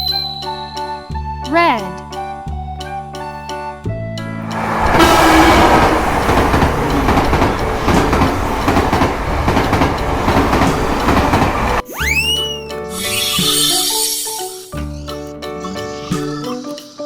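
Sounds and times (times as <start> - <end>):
train running on track: 4.3 - 11.8.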